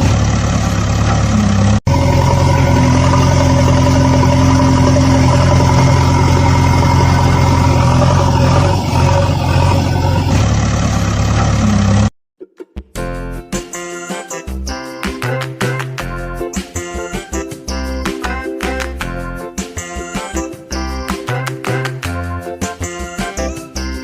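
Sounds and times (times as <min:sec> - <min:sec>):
heavy engine idling low: 0:00.0 - 0:12.1.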